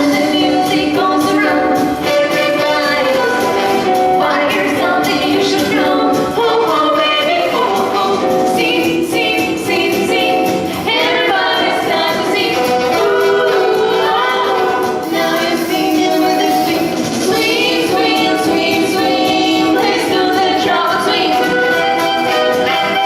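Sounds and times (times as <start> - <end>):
vocal ensemble singing: 0.0 - 23.0.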